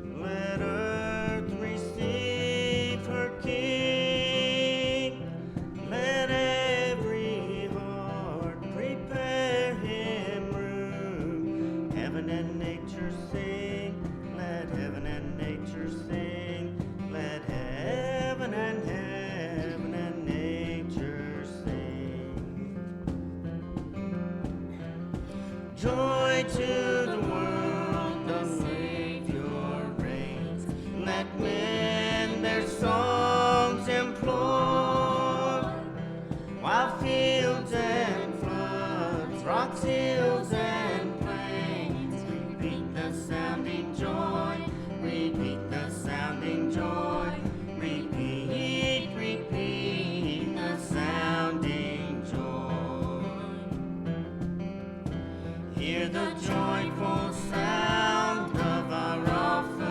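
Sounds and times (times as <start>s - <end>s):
acoustic guitar strumming: 0.0s - 59.9s
person singing with vibrato: 25.3s - 53.9s, 55.5s - 59.9s.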